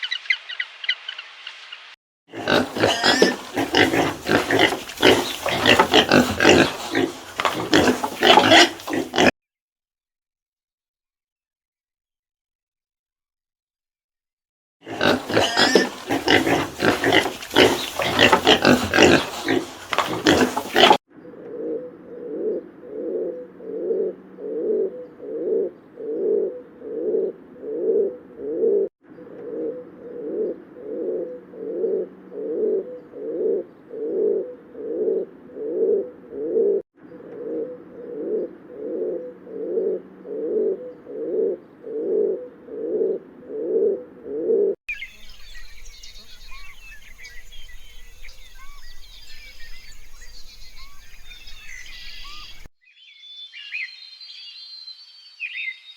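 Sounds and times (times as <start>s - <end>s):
animal grunting and squealing: 2.3s - 9.3s, 14.8s - 44.8s
low animal call: 2.3s - 9.3s, 14.9s - 52.7s.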